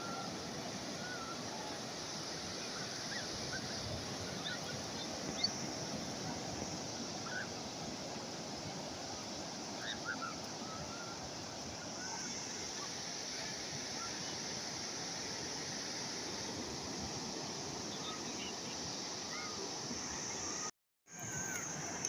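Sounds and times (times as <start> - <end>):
sea waves washing on shore: 0.0 - 22.0.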